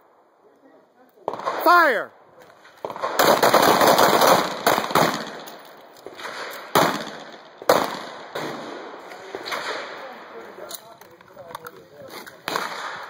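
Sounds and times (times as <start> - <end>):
gunshots with echo: 1.3 - 2.0, 2.8 - 10.4, 12.5 - 13.0.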